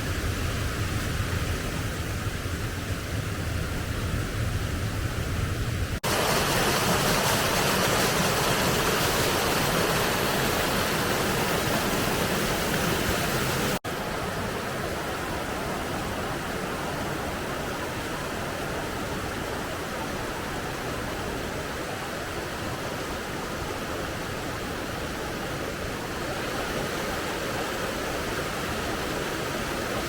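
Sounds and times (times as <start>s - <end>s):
waterfall rushing: 6.0s - 30.0s.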